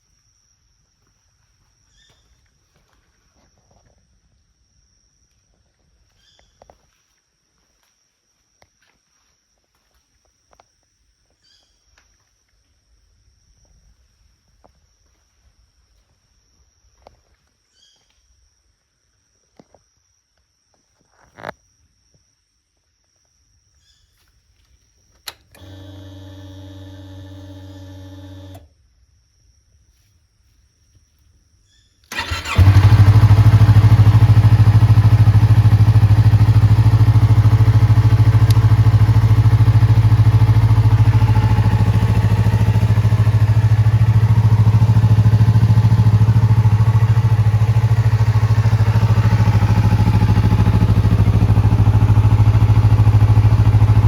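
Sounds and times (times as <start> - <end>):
motorcycle engine starting and idling: 25.3 - 28.6, 32.1 - 54.0.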